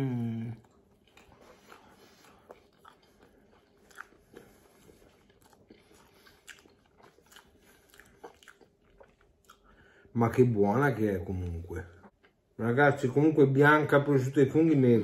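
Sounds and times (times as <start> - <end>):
person chewing food: 0.0 - 10.1.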